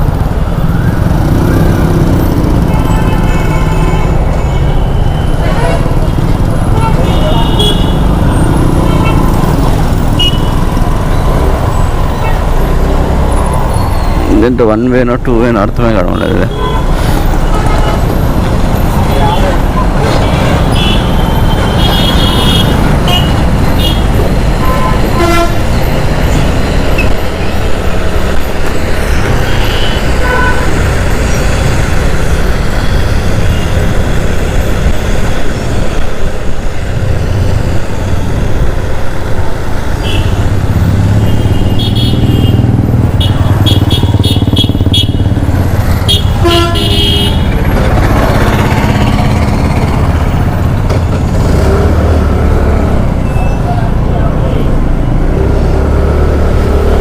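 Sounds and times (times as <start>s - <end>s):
motorcycle engine and road noise: 0.0s - 57.0s
vehicle horns honking: 2.6s - 6.0s, 6.7s - 9.5s, 10.1s - 10.7s, 16.5s - 18.2s, 19.2s - 25.8s, 29.4s - 31.0s, 40.0s - 40.5s, 41.1s - 45.4s, 46.0s - 47.6s.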